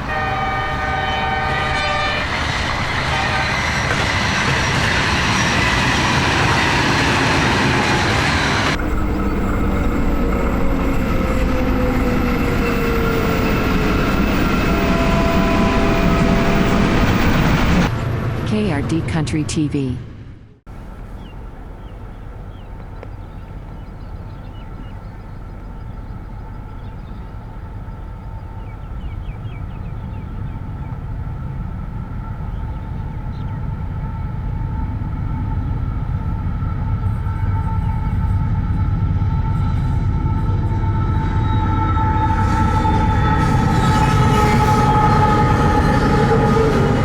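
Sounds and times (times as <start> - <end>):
diesel locomotive rumble: 0.0 - 19.4, 20.7 - 47.0.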